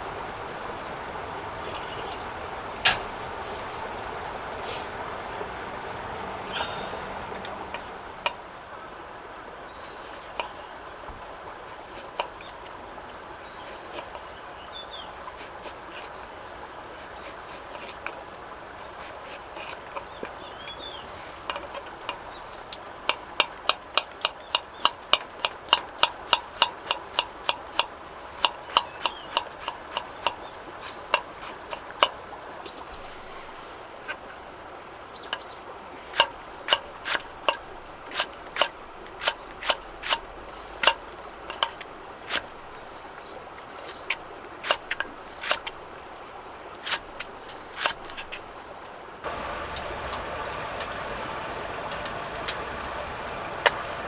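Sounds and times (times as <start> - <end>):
steady low hiss: 0.0 - 23.1, 48.5 - 54.0.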